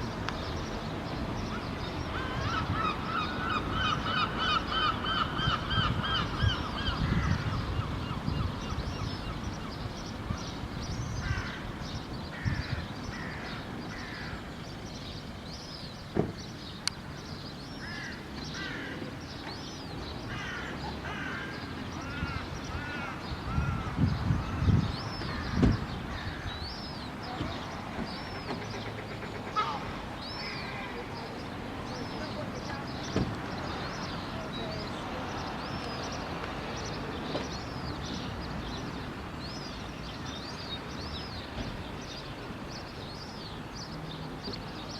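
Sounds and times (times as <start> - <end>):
gulls calling: 17.8 - 38.9.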